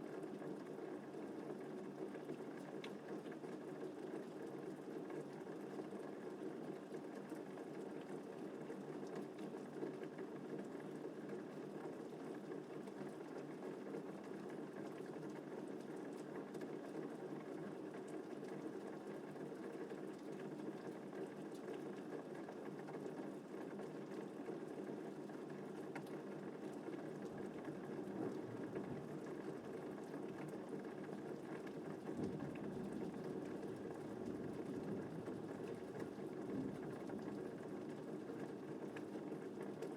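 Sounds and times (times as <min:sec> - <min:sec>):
rain patter: 0:00.0 - 0:39.9.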